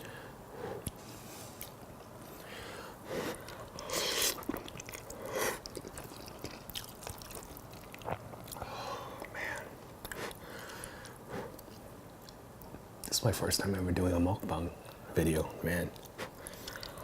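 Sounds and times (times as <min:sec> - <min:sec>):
wet chewing and slurping: 0:03.2 - 0:12.4.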